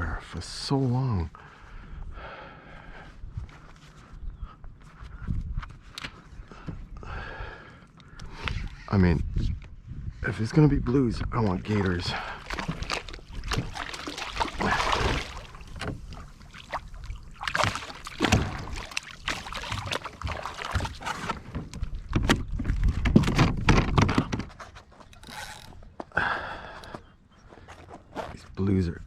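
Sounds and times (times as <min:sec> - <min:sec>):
water sloshing and splashing: 0:11.5 - 0:25.8
knocks and clatter on kayak: 0:12.5 - 0:16.8, 0:17.4 - 0:25.6.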